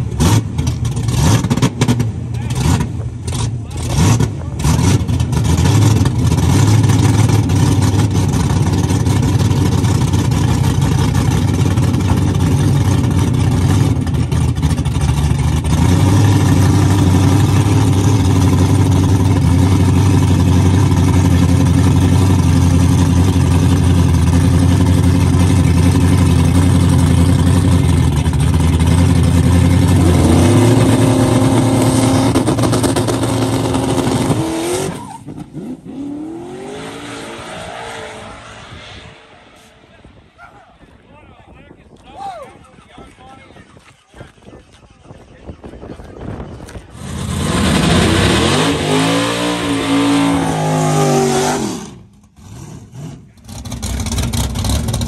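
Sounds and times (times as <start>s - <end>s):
drag race engines idling: 0.0s - 34.1s, 52.0s - 55.0s
engine revving: 0.0s - 40.4s, 46.9s - 55.0s.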